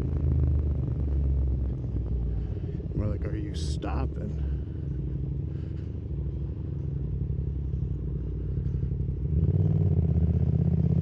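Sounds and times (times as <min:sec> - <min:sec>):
motorcycle engine revving: 0:09.2 - 0:11.0.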